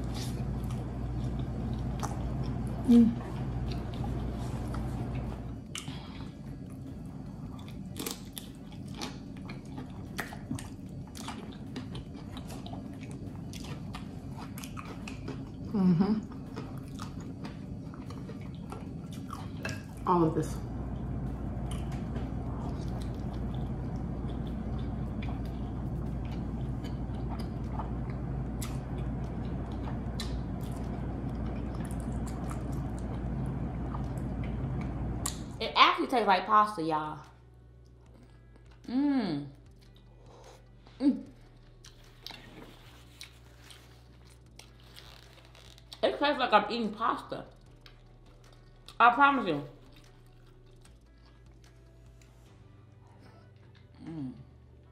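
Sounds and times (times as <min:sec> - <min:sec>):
steady low hum: 0:00.0 - 0:54.9
chewing crunches: 0:03.4 - 0:20.1, 0:20.9 - 0:35.5, 0:39.5 - 0:46.0, 0:47.5 - 0:49.0, 0:49.7 - 0:54.4.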